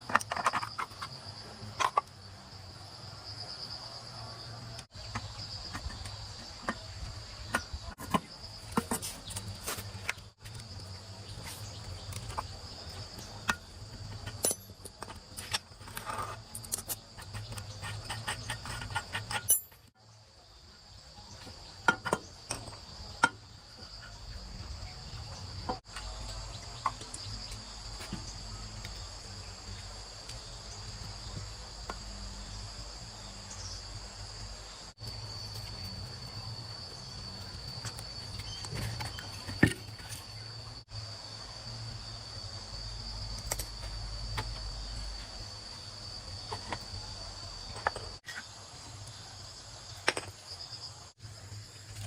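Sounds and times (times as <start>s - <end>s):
sharp handling clicks and knocks: 0.0s - 2.2s
crickets chirring: 0.0s - 52.0s.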